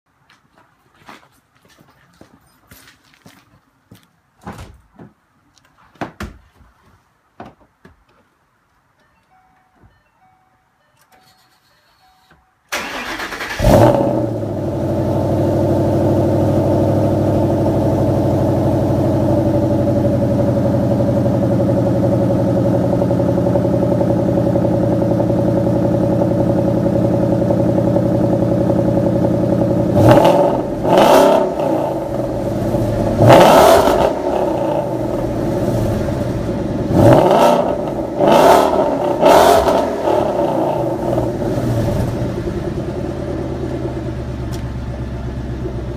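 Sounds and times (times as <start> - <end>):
engine fast idle: 12.7 - 13.9
engine cranking and starting: 12.7 - 14.4
engine throttle blips: 12.7 - 45.9.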